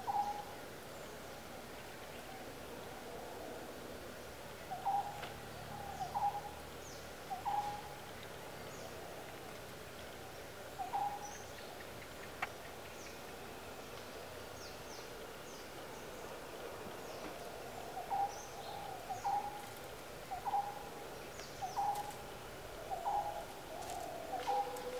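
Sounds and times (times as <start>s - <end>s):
faint high bird chirps: 0.0s - 0.6s, 4.7s - 8.0s
natural background noise: 0.0s - 24.9s.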